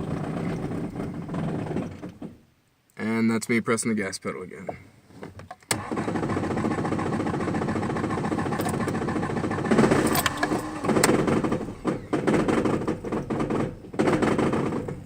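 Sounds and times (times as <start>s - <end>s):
car engine revving unevenly: 6.0s - 15.0s.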